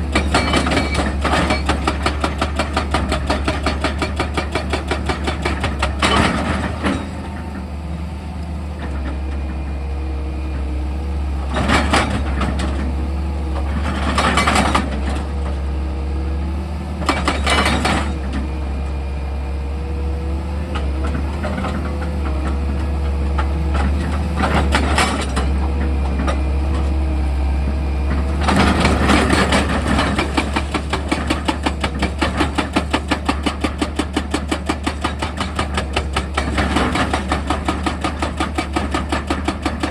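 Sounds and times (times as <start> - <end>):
excavator engine humming: 0.0 - 39.9.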